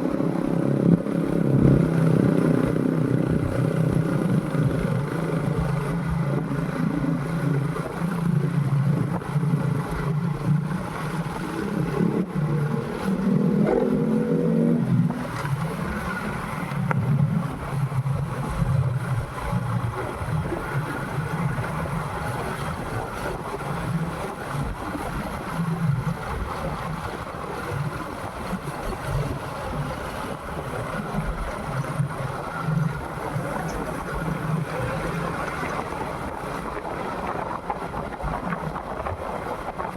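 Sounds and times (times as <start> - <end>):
motorcycle engine revving: 0.0 - 7.6, 11.6 - 15.4
wind rushing over microphone: 0.0 - 39.9.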